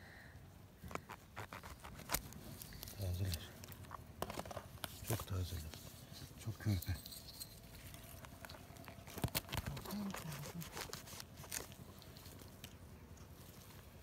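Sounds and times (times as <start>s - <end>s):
mushrooms snapping and tearing: 0.9s - 5.3s, 7.8s - 12.8s.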